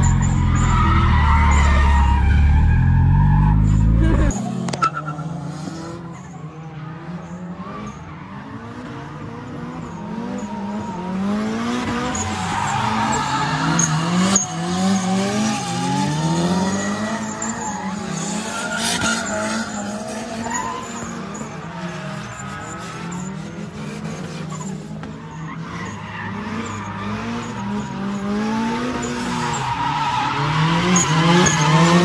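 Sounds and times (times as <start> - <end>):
car engine revving: 0.0 - 32.0
tyres squealing: 11.8 - 23.4.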